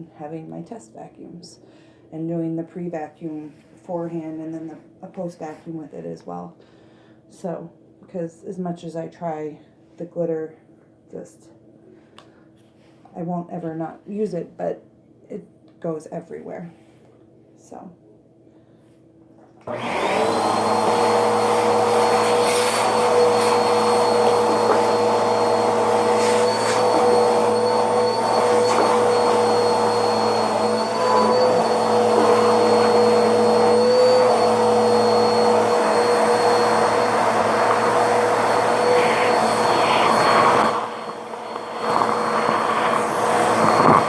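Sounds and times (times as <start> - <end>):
vacuum cleaner running: 19.6 - 44.0.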